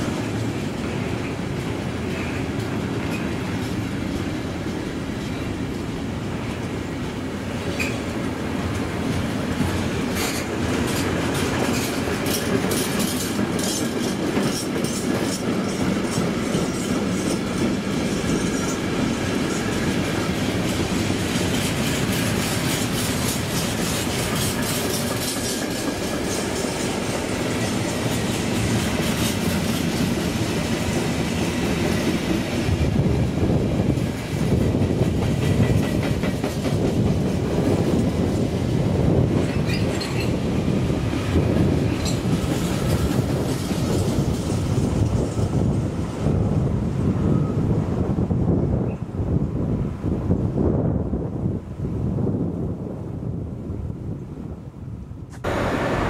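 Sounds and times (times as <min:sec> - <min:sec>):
train wheels clattering: 0:00.0 - 0:45.8
train rumble: 0:00.0 - 0:56.0.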